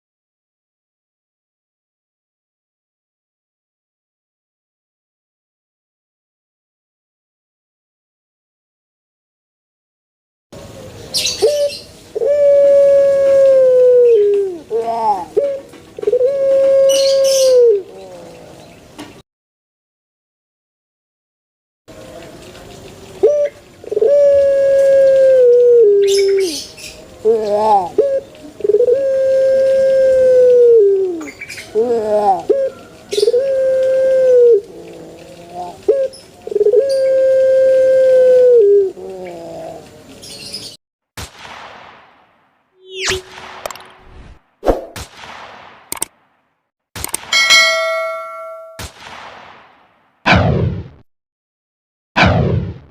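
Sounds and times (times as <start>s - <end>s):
dove cooing: 11.2s - 18.7s, 23.2s - 40.2s.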